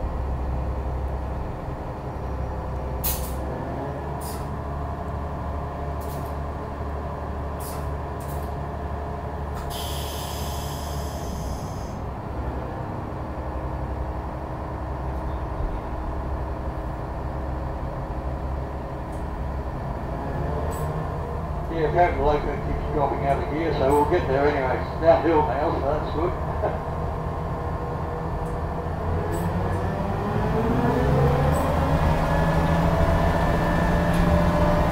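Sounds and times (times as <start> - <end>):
train rumble and drone: 0.0 - 34.9.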